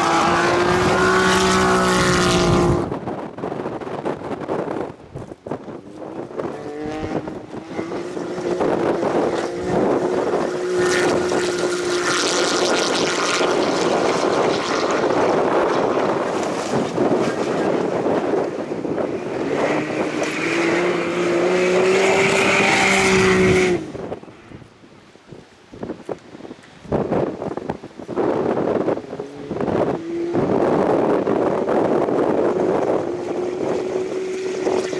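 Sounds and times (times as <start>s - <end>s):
rally car engine accelerating: 0.0s - 3.0s, 6.1s - 24.1s, 28.8s - 34.9s.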